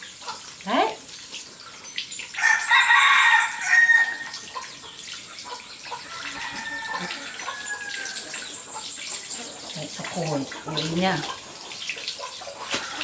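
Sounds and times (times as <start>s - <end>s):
rooster crowing: 2.4s - 4.4s, 6.0s - 8.6s.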